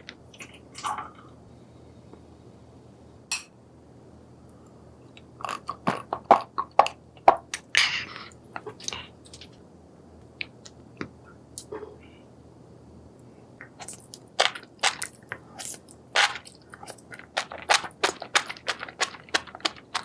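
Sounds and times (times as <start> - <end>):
crunchy chewing: 13.8 - 20.0.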